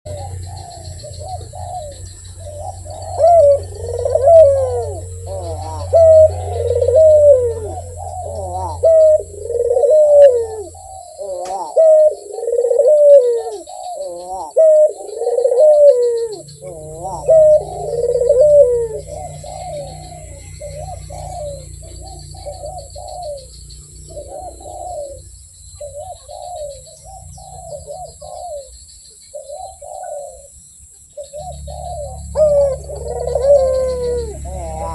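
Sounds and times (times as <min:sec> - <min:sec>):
dove cooing: 0:00.0 - 0:34.9
small birds chirping: 0:00.0 - 0:34.9
low steady hum: 0:00.1 - 0:12.9.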